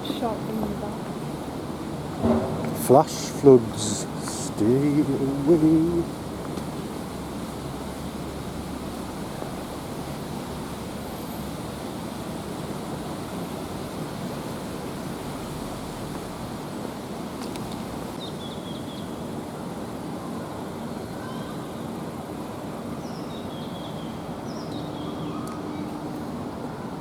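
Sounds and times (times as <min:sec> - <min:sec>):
road traffic rushing: 0:00.0 - 0:18.2.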